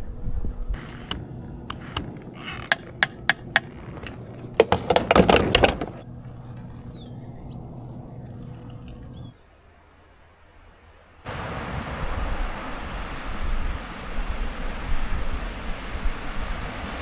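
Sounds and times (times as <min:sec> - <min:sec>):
steady low hum: 0:00.0 - 0:10.0
sharp knocks: 0:00.8 - 0:06.0
clattering: 0:00.8 - 0:06.1.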